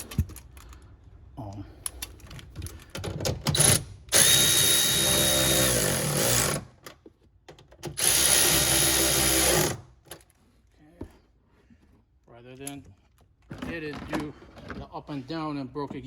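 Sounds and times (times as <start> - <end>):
power tool whirring: 3.5 - 6.7, 7.9 - 9.9.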